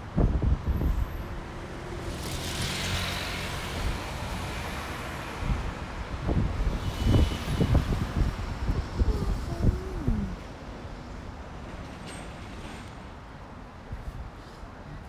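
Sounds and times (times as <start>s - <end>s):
wind buffeting microphone: 5.4s - 10.6s.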